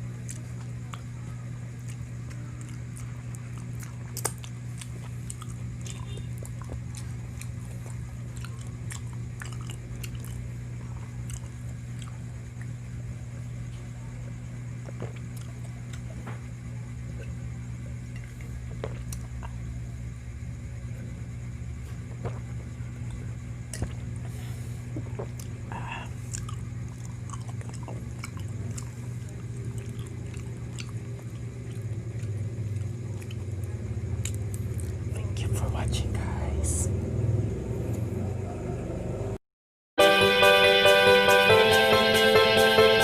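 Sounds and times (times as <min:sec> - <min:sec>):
steady low hum: 0:00.0 - 0:39.4
person chewing chicken: 0:01.7 - 0:12.8, 0:14.8 - 0:16.2, 0:18.2 - 0:19.6, 0:25.0 - 0:35.0
small crunches and clicks: 0:01.8 - 0:12.7, 0:26.3 - 0:35.0.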